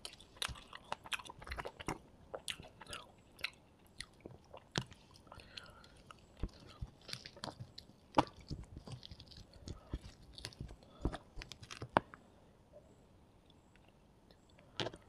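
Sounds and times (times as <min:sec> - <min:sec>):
mouth chewing with wet smacks: 0:00.0 - 0:11.9
crunchy clicks while eating: 0:00.0 - 0:12.2, 0:13.5 - 0:15.0
fingers squishing rice: 0:00.0 - 0:12.2.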